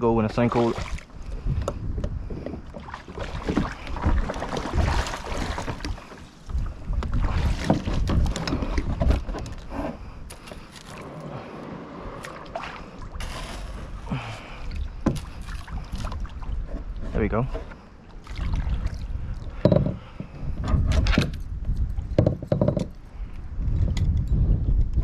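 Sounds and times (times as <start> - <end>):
wind buffeting microphone: 0.0 - 10.7, 18.3 - 25.0
paddle knocks and splashes: 0.2 - 9.6, 12.2 - 17.6.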